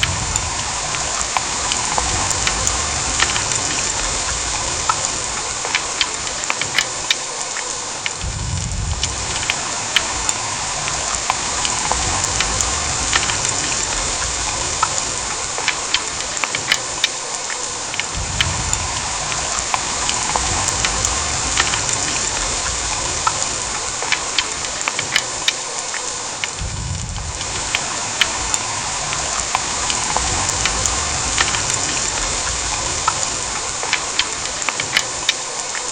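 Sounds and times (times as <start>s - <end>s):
low rumble: 0.0s - 5.6s, 8.2s - 15.4s, 18.1s - 24.0s, 26.6s - 33.8s
heavy rain hissing: 0.0s - 35.9s
raindrops pattering: 0.0s - 35.9s.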